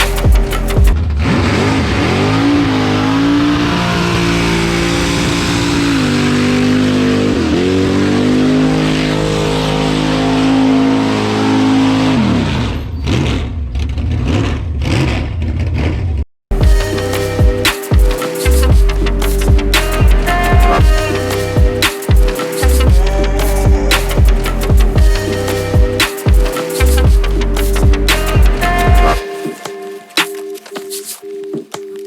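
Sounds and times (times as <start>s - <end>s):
car engine revving: 0.0s - 17.7s.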